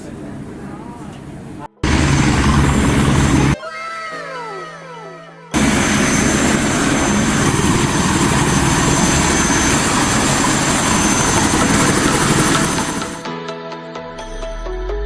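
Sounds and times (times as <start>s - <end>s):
helicopter rotor chop: 1.8s - 3.6s, 5.6s - 13.3s
high engine whine: 1.8s - 3.6s, 5.6s - 13.3s.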